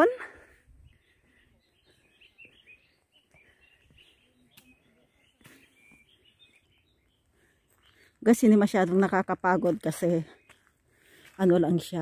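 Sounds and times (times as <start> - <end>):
small birds chirping faintly: 0.0 - 9.0.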